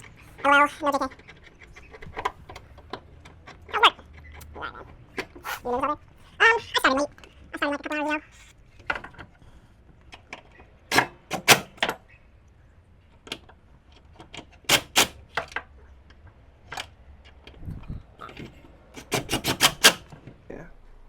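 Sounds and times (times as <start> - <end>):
sharp clicks and knocks: 10.0 - 12.0, 13.1 - 17.6, 18.2 - 20.4
short low rumble: 17.6 - 18.2.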